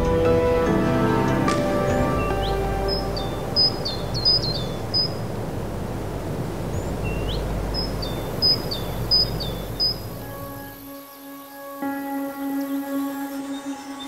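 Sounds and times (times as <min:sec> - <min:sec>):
low outdoor rumble: 0:00.0 - 0:10.8
songbird singing: 0:00.0 - 0:14.0.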